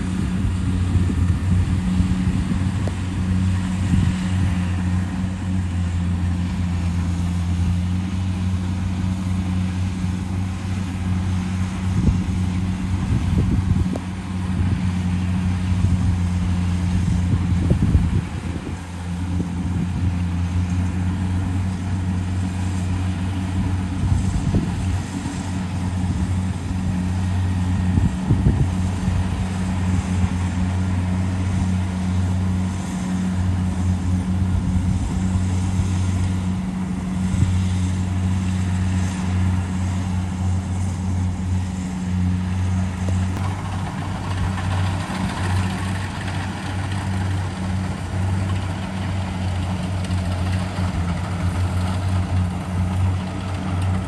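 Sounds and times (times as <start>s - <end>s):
diesel engine humming: 0.0s - 54.0s.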